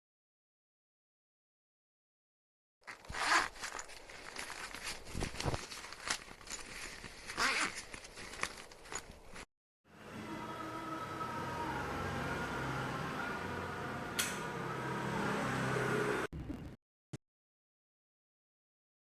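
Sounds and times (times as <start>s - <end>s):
fabric rustling: 2.8s - 9.5s
zipper rasping: 2.8s - 9.5s.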